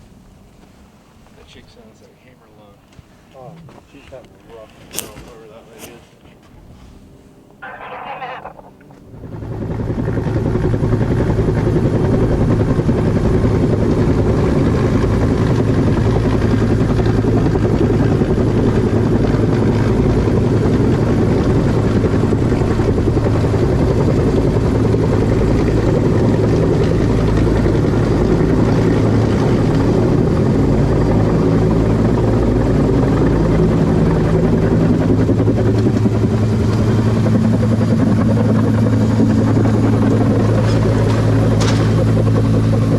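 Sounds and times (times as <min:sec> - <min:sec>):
helicopter rotor and turbine drone: 0:07.6 - 0:42.9.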